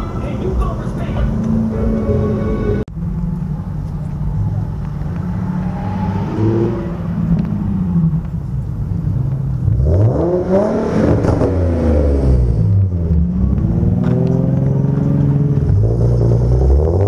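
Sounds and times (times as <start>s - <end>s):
car engine revving past: 4.1s - 8.2s.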